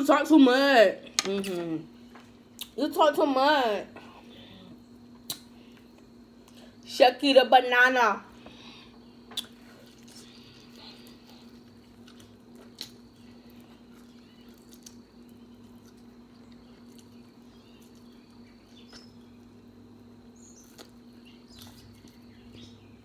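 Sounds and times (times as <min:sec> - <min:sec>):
steady low hum: 0:00.0 - 0:23.0
eating clicks and smacks: 0:05.2 - 0:05.5.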